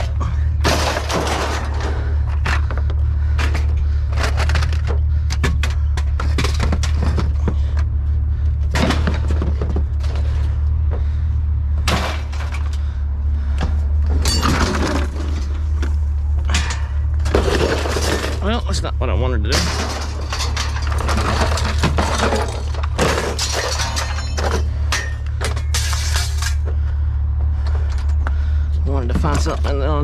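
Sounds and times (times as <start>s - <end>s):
scrap metal clattering: 0.0s - 7.8s, 13.6s - 15.8s, 16.4s - 18.6s, 19.5s - 26.8s
steady low hum: 0.0s - 30.0s.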